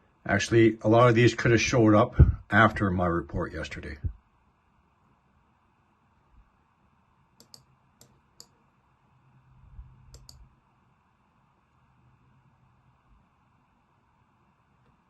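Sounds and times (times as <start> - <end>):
low room hum: 0.0 - 15.0
computer mouse clicks: 7.4 - 8.6, 10.0 - 10.5.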